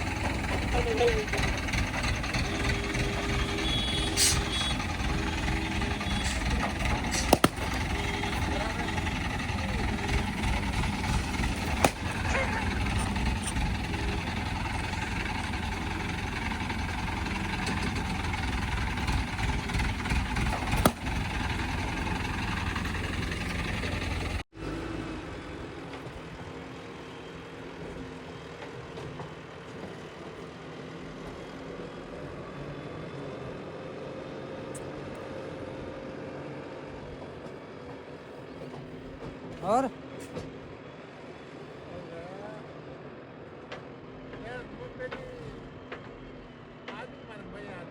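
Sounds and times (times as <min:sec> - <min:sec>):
engine idling hum: 0:00.0 - 0:25.4
heavy machinery diesel engines: 0:00.0 - 0:47.9.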